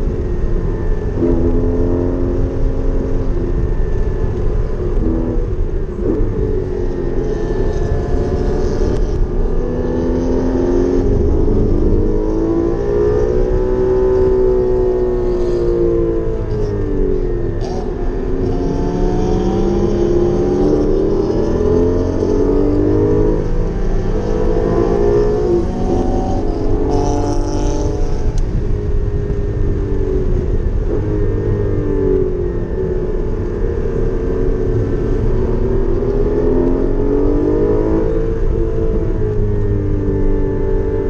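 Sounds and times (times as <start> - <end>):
car engine revving hard: 1.1 - 28.5.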